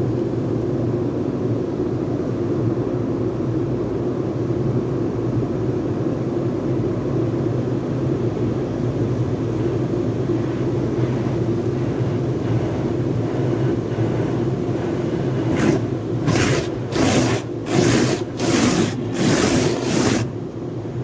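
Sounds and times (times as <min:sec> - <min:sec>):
car wash motor hum: 0:09.1 - 0:21.0
hissing pulses: 0:12.6 - 0:20.4.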